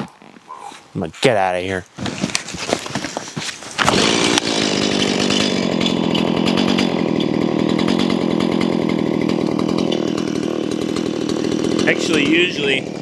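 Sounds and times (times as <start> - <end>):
chainsaw cutting log: 2.0 - 13.0.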